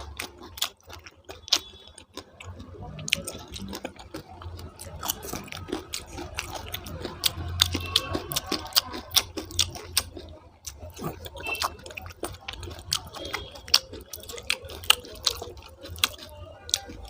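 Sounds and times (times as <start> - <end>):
wet mouth clicks and chewing: 0.0 - 17.0.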